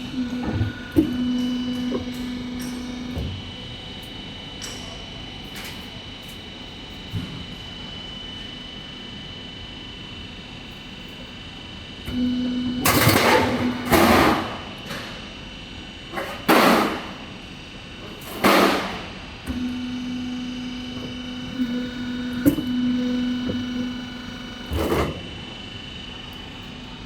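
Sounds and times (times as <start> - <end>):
machine motor hum: 0.0 - 4.2, 12.0 - 27.0.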